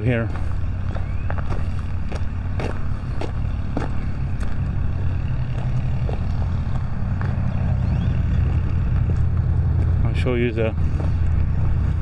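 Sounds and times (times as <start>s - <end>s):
soft footsteps on a path: 0.0s - 11.6s
low rumble: 0.0s - 12.0s.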